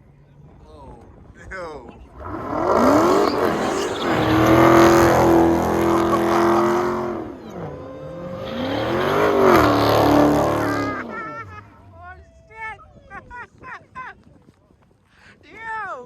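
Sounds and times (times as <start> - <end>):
tyres squealing: 1.9 - 12.0
car engine revving hard: 2.1 - 11.7.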